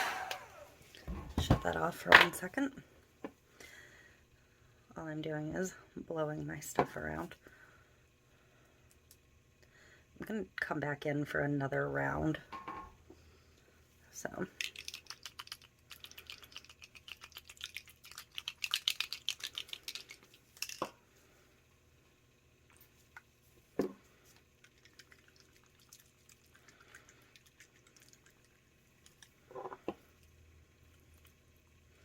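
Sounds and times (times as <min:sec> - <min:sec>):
liquid dripping: 0:14.6 - 0:20.4.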